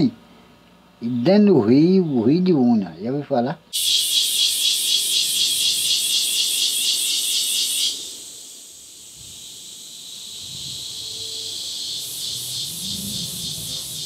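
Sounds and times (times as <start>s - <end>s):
high insect drone: 3.7s - 14.0s
insect pulsing song: 3.7s - 14.0s.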